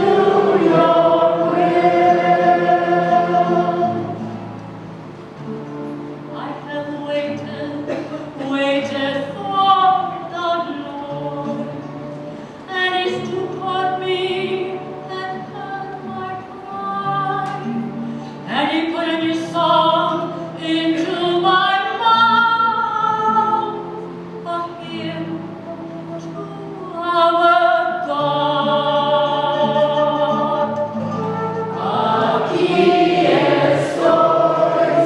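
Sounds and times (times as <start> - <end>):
voices singing long held notes: 0.0 - 4.4, 28.0 - 35.0.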